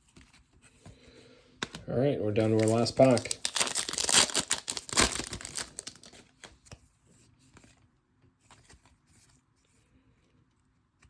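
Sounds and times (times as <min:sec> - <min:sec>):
trading cards being flipped: 0:02.4 - 0:06.8.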